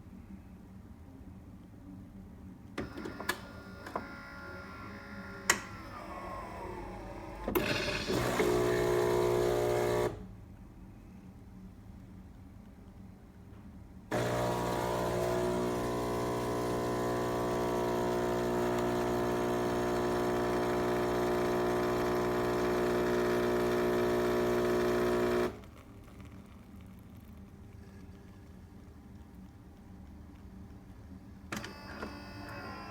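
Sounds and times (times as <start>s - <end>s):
coffee machine pump buzzing: 2.8s - 10.2s, 14.1s - 26.6s, 31.5s - 32.9s.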